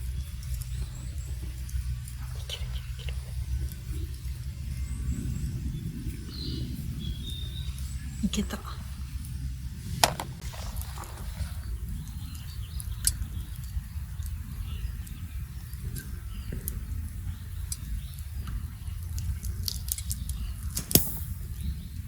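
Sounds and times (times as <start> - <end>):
campfire crackling and popping: 0.0 - 22.0
low steady rumble: 0.0 - 22.0.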